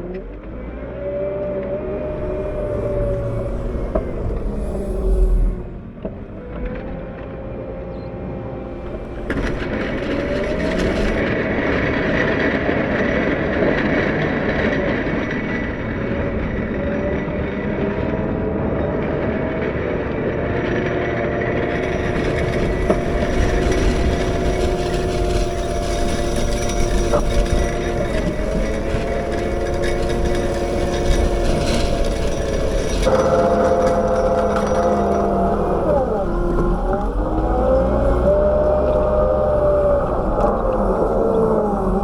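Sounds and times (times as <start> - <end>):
whining tones: 0.0 - 11.4, 21.2 - 42.0
diesel engine running: 0.0 - 42.0.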